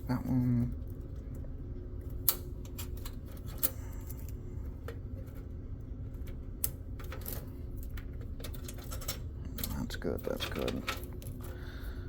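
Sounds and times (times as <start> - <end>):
steady low hum: 0.0 - 12.0
cables being handled: 2.0 - 12.0.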